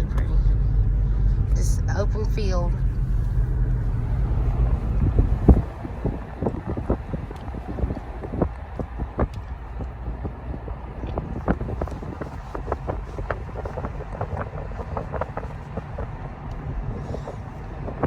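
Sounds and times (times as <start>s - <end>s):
vehicle road noise rumble: 0.0s - 18.0s
wind buffeting microphone: 0.0s - 18.0s.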